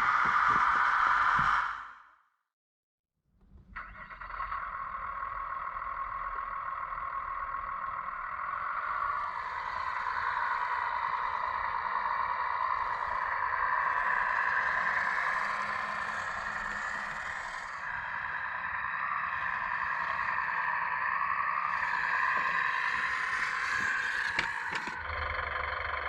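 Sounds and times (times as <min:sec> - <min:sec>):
small electric pump whirring: 0:21.6 - 0:25.1.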